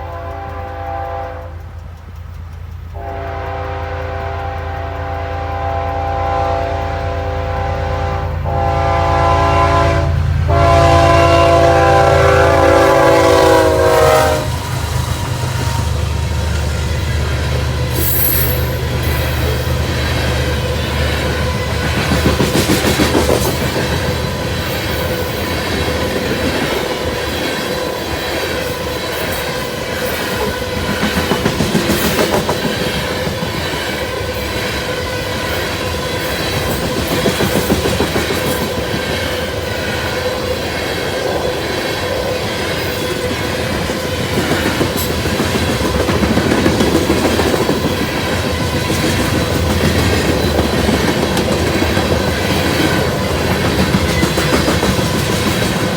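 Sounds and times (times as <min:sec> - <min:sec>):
train rumble: 0:00.0 - 0:55.9
train wheels clacking on rails: 0:00.0 - 0:55.9.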